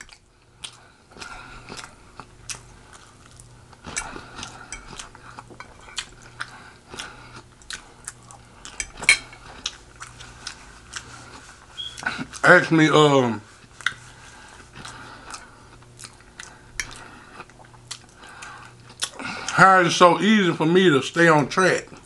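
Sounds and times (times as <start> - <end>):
person chewing food: 0.0 - 12.5, 13.5 - 19.6.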